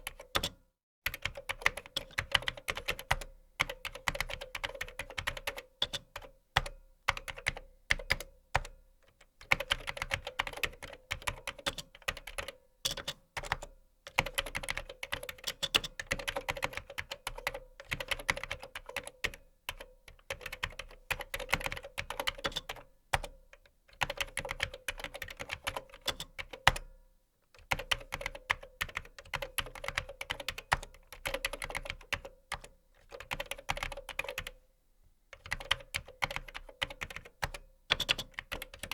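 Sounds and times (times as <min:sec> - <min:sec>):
typing on computer keyboard: 0:00.0 - 0:26.9, 0:27.6 - 0:34.6, 0:35.4 - 0:38.9.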